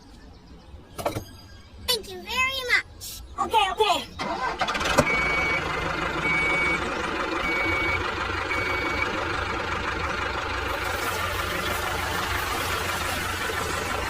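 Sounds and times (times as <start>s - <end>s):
engine hum: 4.1s - 14.0s
reversing alarm beeping: 5.0s - 9.2s.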